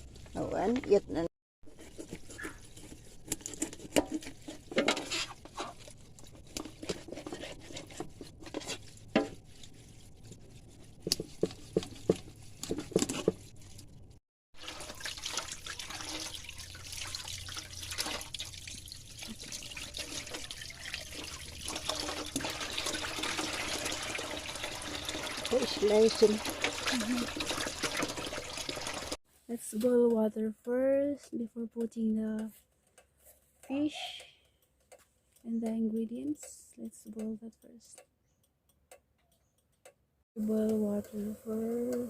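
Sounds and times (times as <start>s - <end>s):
water dripping and splashing: 0.0s - 1.0s, 3.9s - 29.2s
knocks and clatter of handling: 1.7s - 9.7s, 11.0s - 13.5s.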